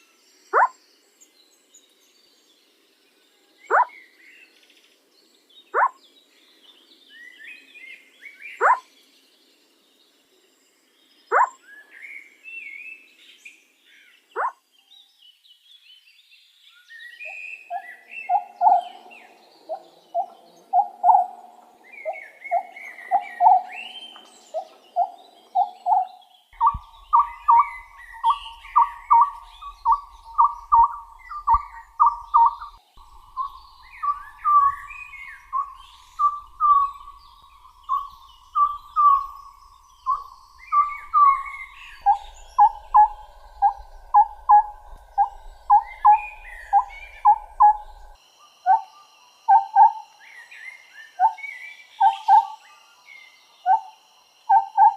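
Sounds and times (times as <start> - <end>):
high bird chirps: 0.6 - 0.8, 3.7 - 3.9, 5.8 - 6.0, 8.6 - 8.8, 11.3 - 11.6, 14.4 - 14.6, 17.2 - 48.9
owl whistled calls: 8.6 - 8.8, 11.3 - 11.5, 17.2 - 19.0, 25.0 - 50.1, 51.1 - 52.6, 53.7 - 54.9.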